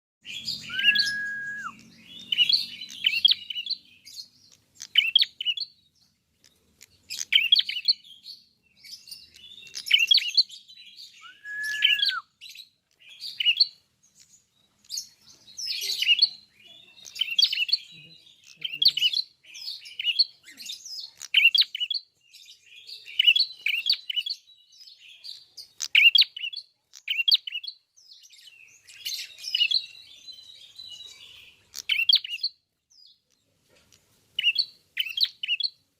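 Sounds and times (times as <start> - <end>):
bird chirping rapidly: 0.2 - 22.0
clear whistled bird note: 0.5 - 1.8, 11.1 - 12.3.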